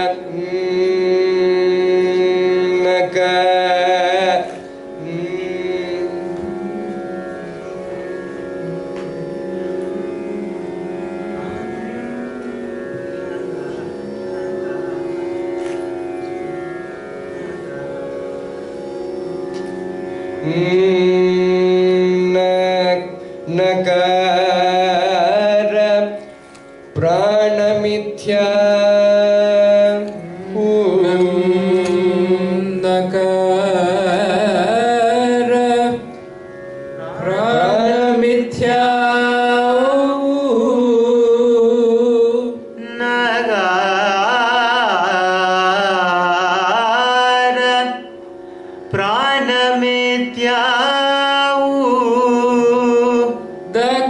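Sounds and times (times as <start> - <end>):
steady drone: 0.0 - 54.0
person singing ornamented melody: 37.0 - 48.2.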